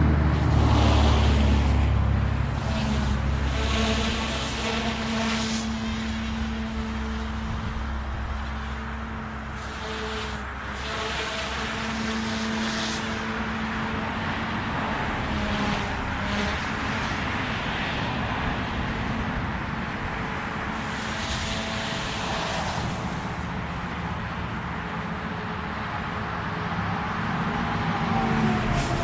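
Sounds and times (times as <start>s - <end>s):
whoosh of spinning rotor blades: 0.0s - 24.7s, 25.6s - 29.0s
electric motor whine: 2.4s - 17.2s, 19.8s - 23.6s.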